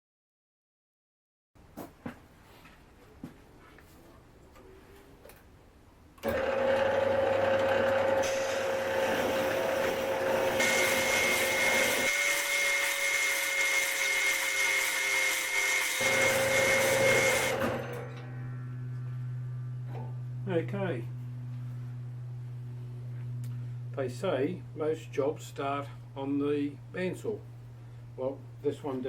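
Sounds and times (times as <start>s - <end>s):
power tool running: 6.2s - 20.2s.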